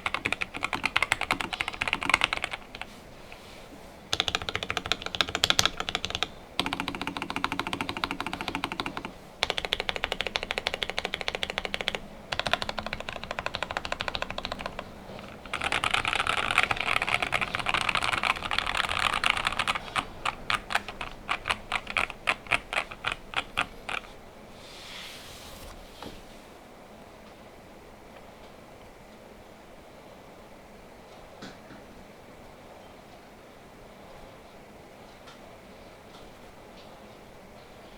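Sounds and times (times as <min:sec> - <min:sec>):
typing on a mechanical keyboard: 0:00.0 - 0:02.9, 0:04.1 - 0:24.2.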